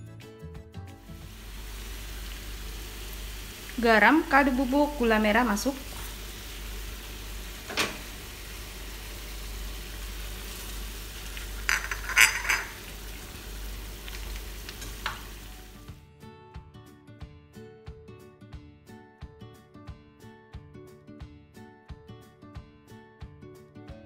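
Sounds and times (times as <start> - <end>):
background music: 0.0 - 2.4, 15.4 - 24.0
sauce sizzling in frying pan: 1.0 - 16.0
spatula scraping pan: 11.4 - 13.1.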